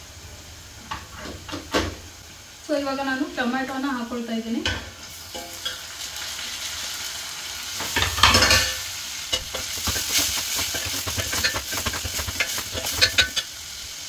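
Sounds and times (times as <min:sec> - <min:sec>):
vegetables sizzling in hot oil: 0:00.0 - 0:14.0
ladle scraping and clicking on pan: 0:07.8 - 0:13.5.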